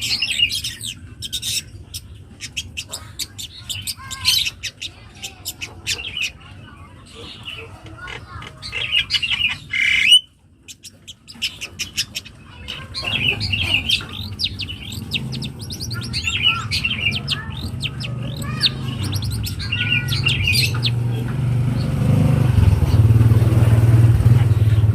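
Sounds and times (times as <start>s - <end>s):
shrike singing: 8.6s - 23.1s
low motor hum: 13.0s - 24.9s.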